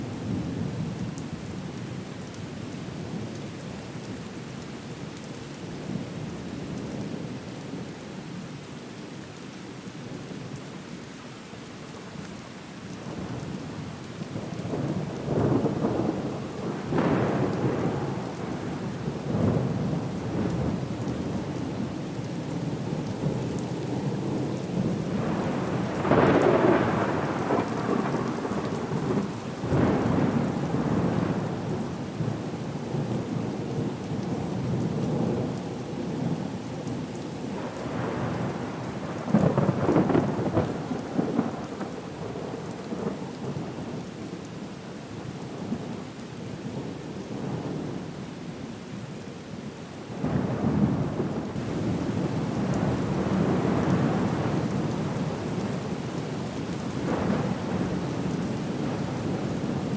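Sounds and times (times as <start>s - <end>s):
steady rain: 0.0s - 59.9s
rumbling thunder: 25.1s - 31.7s, 37.9s - 43.2s, 50.2s - 55.4s, 57.0s - 59.9s.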